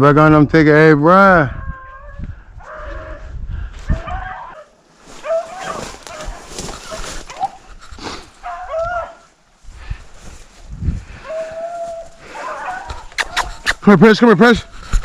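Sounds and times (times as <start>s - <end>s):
hounds baying: 1.5s - 3.3s, 3.9s - 7.7s, 8.3s - 9.3s, 11.1s - 13.7s.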